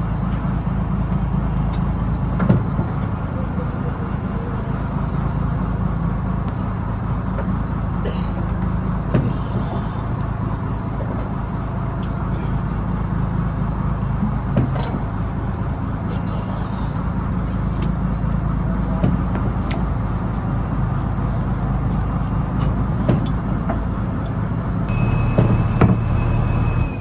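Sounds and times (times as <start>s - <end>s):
diesel engine running: 0.0s - 27.0s
short knocks: 24.9s - 27.0s.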